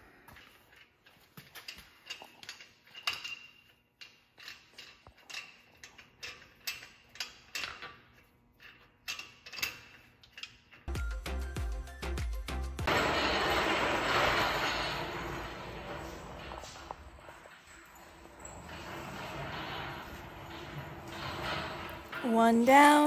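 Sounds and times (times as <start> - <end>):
music with heavy bass beat: 10.9 - 12.8.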